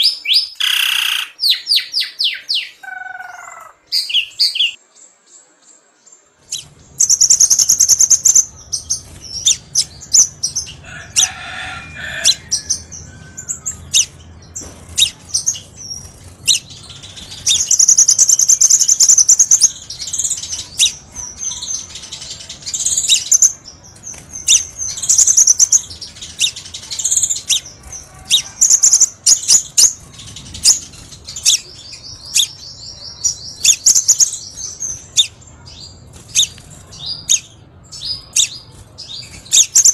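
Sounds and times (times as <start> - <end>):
bird chirping and trilling: 0.0 - 4.8, 6.4 - 39.9.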